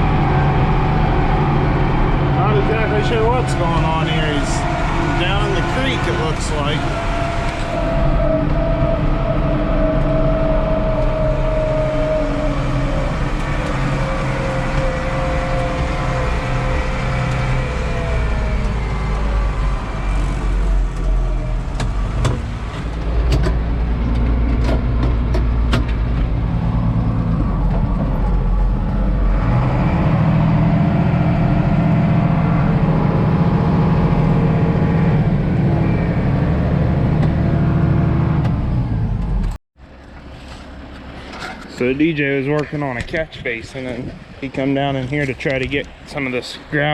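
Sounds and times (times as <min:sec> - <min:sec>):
diesel machinery engine running: 0:00.0 - 0:42.6
sharp clicks and knocks: 0:21.7 - 0:26.4.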